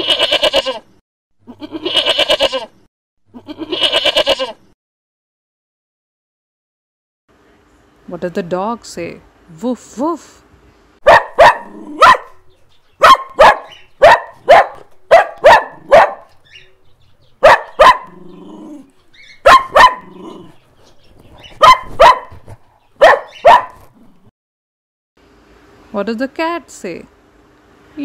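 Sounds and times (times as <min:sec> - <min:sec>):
dog barking: 0:11.0 - 0:12.4, 0:13.0 - 0:16.4, 0:17.4 - 0:18.2, 0:19.4 - 0:20.5, 0:21.6 - 0:23.9.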